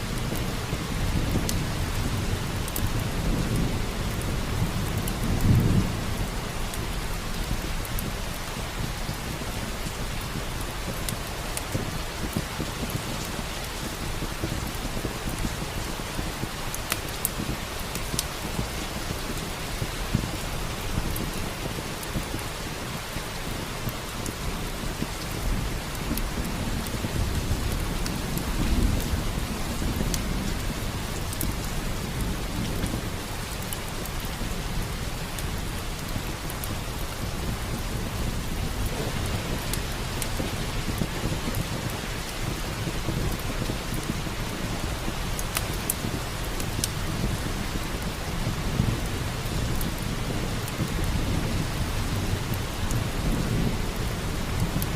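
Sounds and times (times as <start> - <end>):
steady rain: 0.0 - 54.9
wood fire crackling: 0.0 - 54.9
thunder rumble: 23.5 - 54.9.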